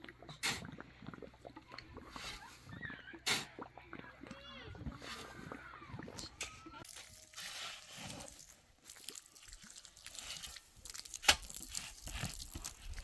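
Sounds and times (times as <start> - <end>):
crunching and rustling handling: 6.8 - 13.0.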